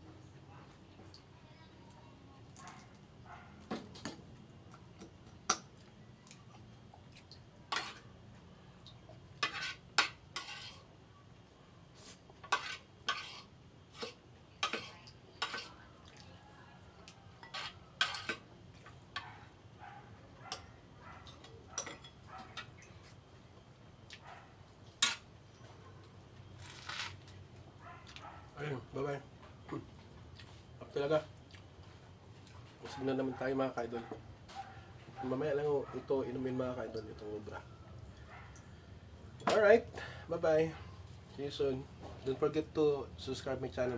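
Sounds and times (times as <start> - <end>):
utensils clinking against dishes: 17.4 - 18.5, 20.5 - 22.9.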